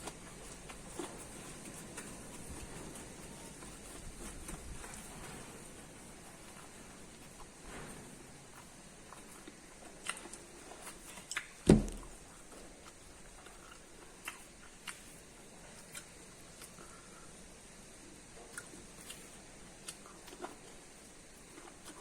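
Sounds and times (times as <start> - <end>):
crisp chewing clicks: 9.2 - 11.6
loud dull thump: 11.7 - 12.1.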